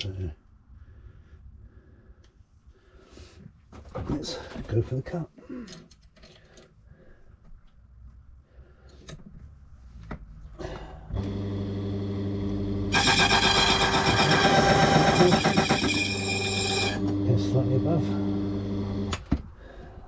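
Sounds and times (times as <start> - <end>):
high-pitched cutting whine: 12.9 - 19.1
key-cutting machine motor hum: 12.9 - 19.1.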